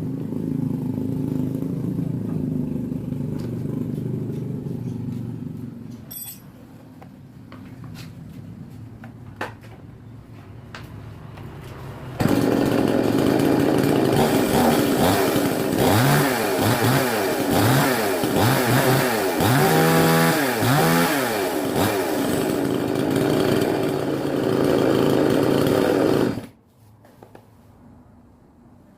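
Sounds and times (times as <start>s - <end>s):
chainsaw engine revving: 12.2s - 26.5s.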